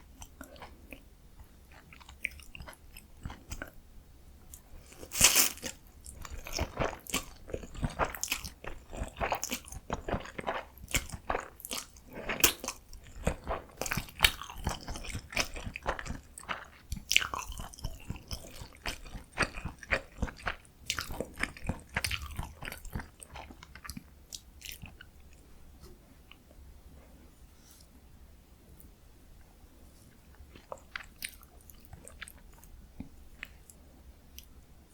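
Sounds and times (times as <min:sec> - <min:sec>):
chewing noodles: 0:01.7 - 0:03.8, 0:04.5 - 0:25.4.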